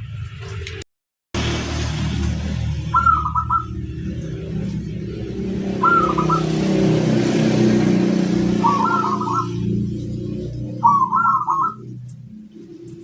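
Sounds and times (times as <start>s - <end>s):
dove cooing: 2.9s - 4.2s, 5.6s - 6.8s, 8.1s - 12.1s.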